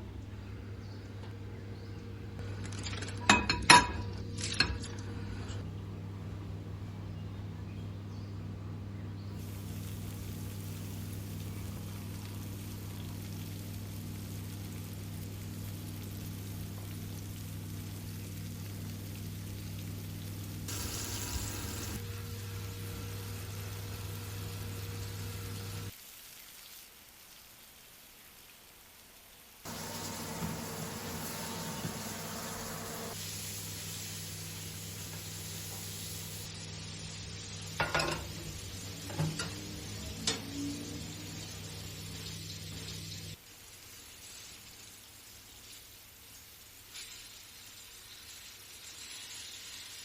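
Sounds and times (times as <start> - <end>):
hiss: 20.7 - 22.0, 29.7 - 37.4
low hum: 29.7 - 43.4.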